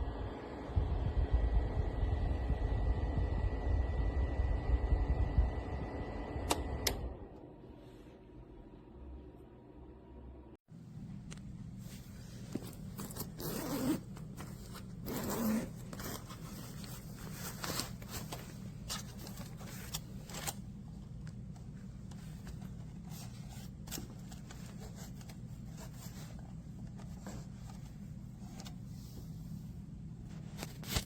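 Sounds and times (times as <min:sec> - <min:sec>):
heater fan humming: 0:00.0 - 0:09.6, 0:10.7 - 0:31.0
rustling scraping noises: 0:11.8 - 0:20.6, 0:22.0 - 0:29.6.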